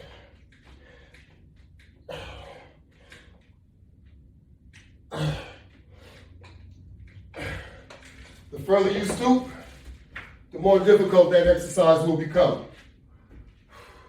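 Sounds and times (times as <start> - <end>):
man breathing hard: 0.0 - 3.5, 5.1 - 6.6, 7.2 - 8.3, 13.3 - 14.0.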